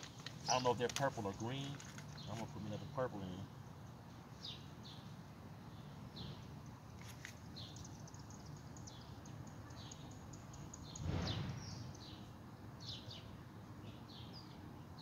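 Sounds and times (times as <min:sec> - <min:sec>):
small birds chirping: 0:00.0 - 0:15.0
brief rush of noise: 0:11.0 - 0:11.7.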